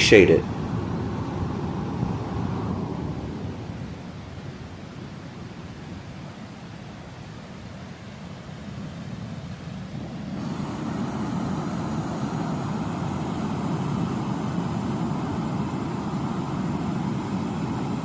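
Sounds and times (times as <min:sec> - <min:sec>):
waterfall rushing: 0:10.4 - 0:18.0.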